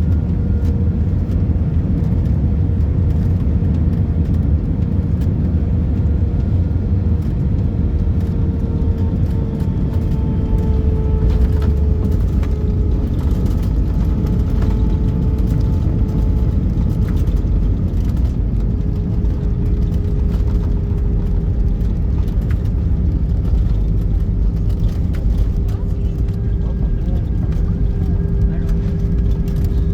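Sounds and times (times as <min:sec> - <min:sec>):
aircraft cabin rumble with whine: 0:00.0 - 0:29.9
light rattles and clicks: 0:00.1 - 0:29.9.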